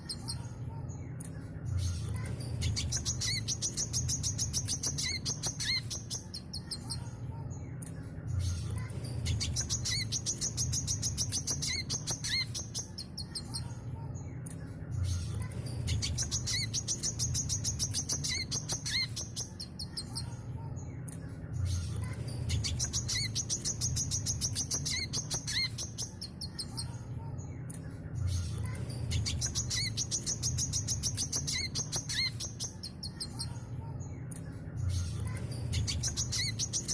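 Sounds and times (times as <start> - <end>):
bird singing chattering notes: 1.8 - 7.1, 8.6 - 13.8, 15.1 - 21.1, 22.1 - 27.0, 28.6 - 33.7, 34.9 - 36.9.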